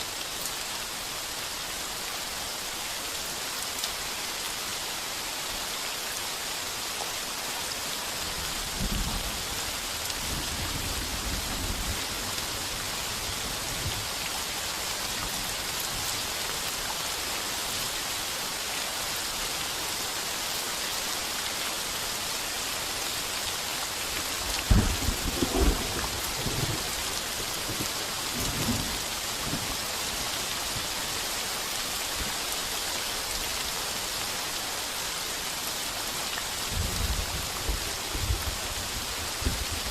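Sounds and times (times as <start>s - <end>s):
heavy rain on a tin roof: 0.0s - 39.9s
thunderclap: 24.6s - 26.9s
thunder rumbling: 24.6s - 29.7s.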